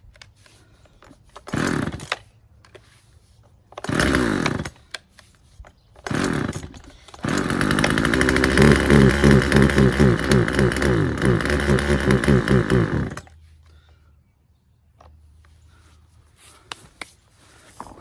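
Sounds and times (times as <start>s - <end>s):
starter cord pulls: 1.0s - 2.9s, 3.7s - 5.1s, 5.9s - 13.4s
chainsaw engine running: 1.5s - 2.2s, 3.8s - 4.8s, 6.0s - 13.3s.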